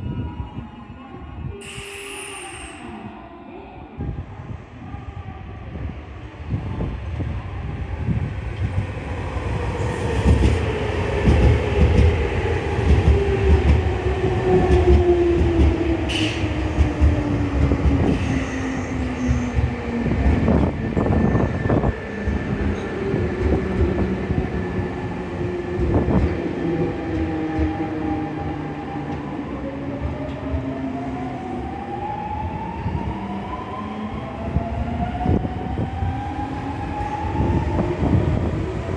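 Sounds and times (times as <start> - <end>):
train wheels clattering on track: 12.8 - 13.9.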